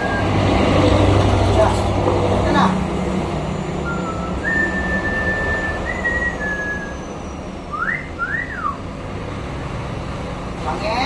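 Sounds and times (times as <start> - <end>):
myna bird whistling: 0.0 - 0.7, 3.7 - 8.9.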